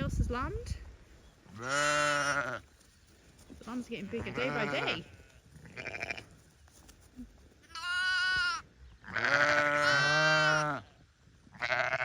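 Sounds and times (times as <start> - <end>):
sheep bleating: 1.5 - 2.7, 4.1 - 6.3, 7.7 - 10.9, 11.5 - 12.0.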